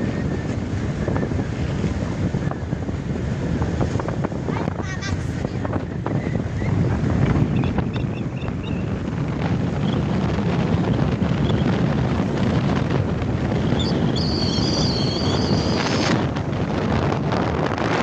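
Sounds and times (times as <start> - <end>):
wind buffeting microphone: 0.0 - 18.0
high whistling tone: 13.8 - 16.1.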